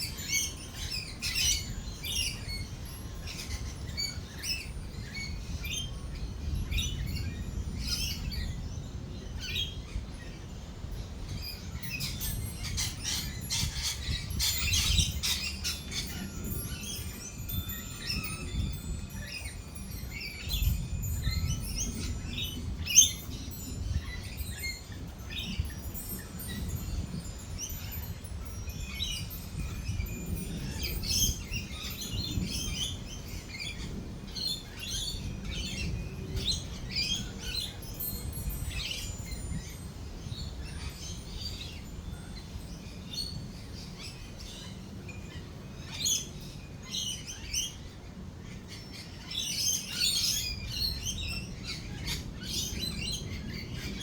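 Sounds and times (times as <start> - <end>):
lorikeets chirping and screeching: 0.0 - 54.0.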